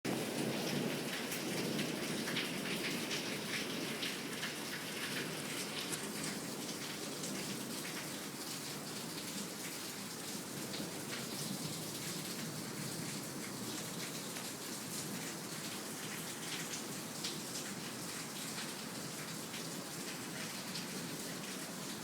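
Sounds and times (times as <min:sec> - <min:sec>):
heavy rain pouring: 0:00.1 - 0:22.0.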